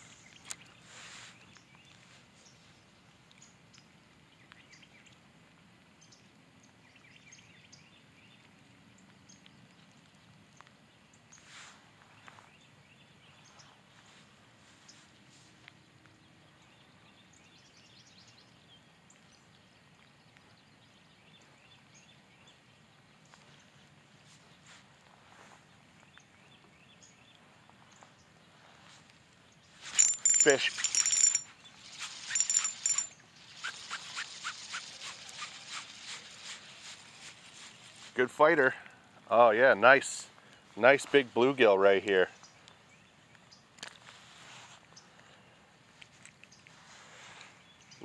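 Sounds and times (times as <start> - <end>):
light rain: 0.0 - 48.0
rain drops ticking: 8.0 - 11.4
distant bird chirps: 29.5 - 38.1.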